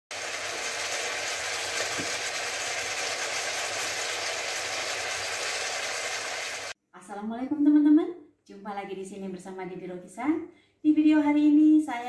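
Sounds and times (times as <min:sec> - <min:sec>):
food sizzling in a wok: 0:00.1 - 0:06.8.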